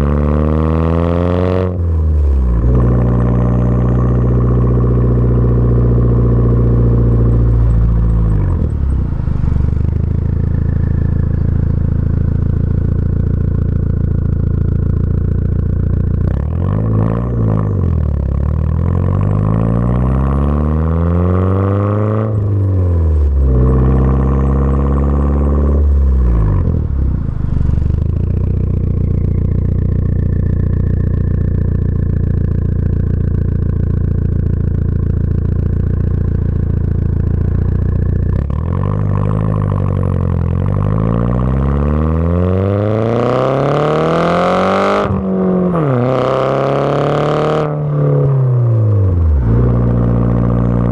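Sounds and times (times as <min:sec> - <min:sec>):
car engine revving: 0:00.0 - 0:50.9.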